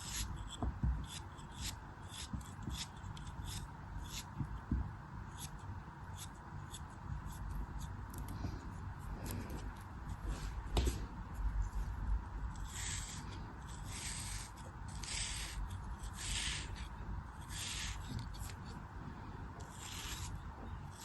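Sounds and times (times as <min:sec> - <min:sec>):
knife scraping strokes: 0:00.0 - 0:04.4, 0:12.5 - 0:18.8, 0:19.6 - 0:21.0.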